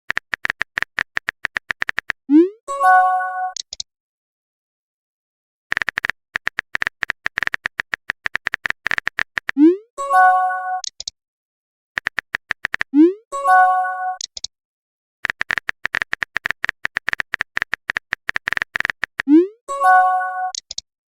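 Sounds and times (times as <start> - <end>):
keyboard typing clicks: 0.1 - 2.2, 3.5 - 3.9, 5.7 - 9.7, 10.8 - 11.1, 12.0 - 13.1, 14.1 - 14.5, 15.2 - 19.4, 20.4 - 20.8.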